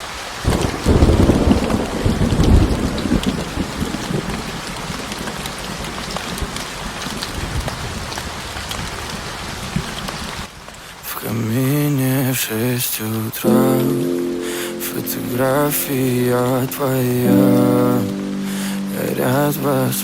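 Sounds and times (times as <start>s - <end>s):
rain falling: 0.0s - 20.0s
low thunder roll: 0.5s - 4.3s.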